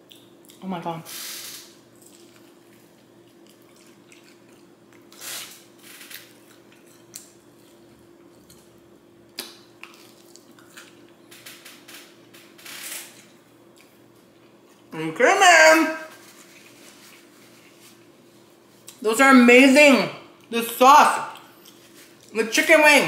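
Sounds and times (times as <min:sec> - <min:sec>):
person chewing chicken wing: 0:01.9 - 0:05.2, 0:05.9 - 0:11.2.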